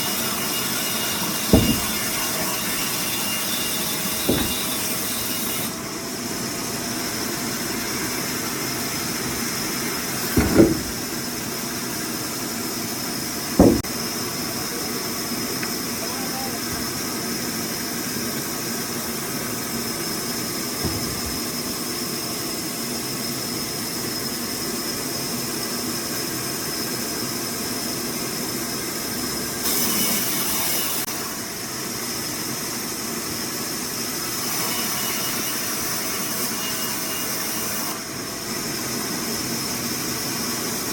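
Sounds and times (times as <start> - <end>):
sawmill machinery whining: 0.0 - 16.7.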